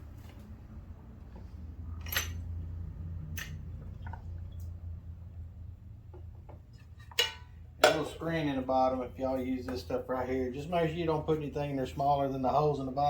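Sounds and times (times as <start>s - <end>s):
steady low hum: 0.0s - 13.0s
metallic clinks of small parts: 2.0s - 2.5s.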